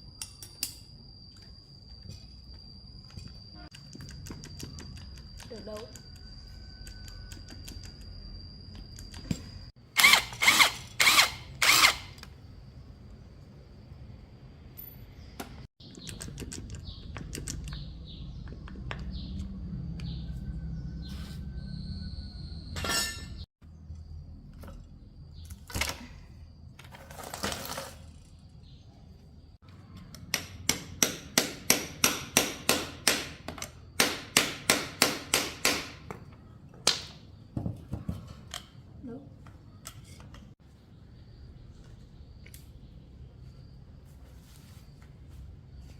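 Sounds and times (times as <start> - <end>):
power drill motor whining: 10.0 - 12.3.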